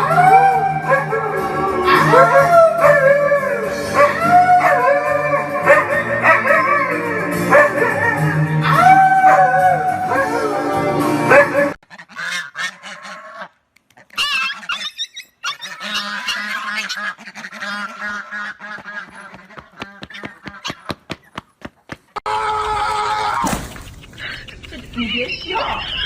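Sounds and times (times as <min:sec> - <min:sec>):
background music: 0:00.0 - 0:11.8
animal calling: 0:11.8 - 0:20.9.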